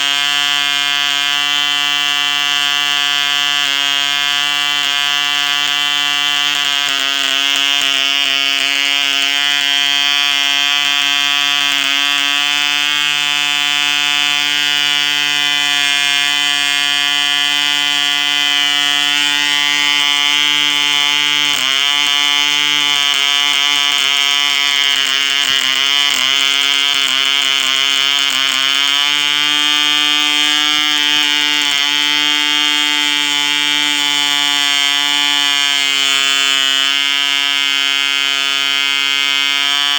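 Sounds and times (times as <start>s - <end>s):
model engine high-pitched buzz: 0.0s - 39.9s.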